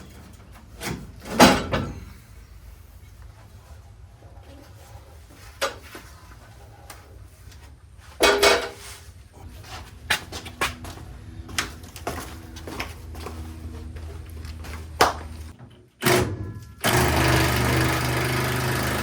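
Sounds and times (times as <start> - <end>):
low hum: 9.4 - 15.6.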